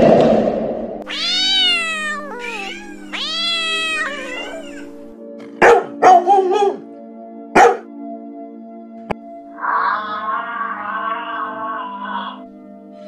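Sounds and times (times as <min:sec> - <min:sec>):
cat meowing: 0:01.0 - 0:05.1, 0:09.6 - 0:12.4
background music with held notes: 0:01.0 - 0:13.0
short loud dog barks: 0:05.6 - 0:06.8, 0:07.6 - 0:07.9.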